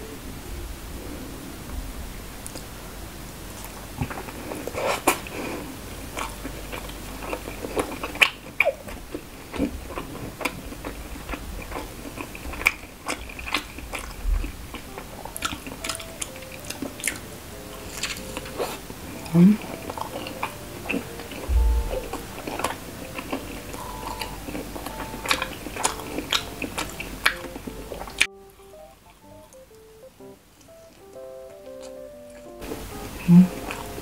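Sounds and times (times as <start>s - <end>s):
person biting and chewing: 3.6s - 28.3s.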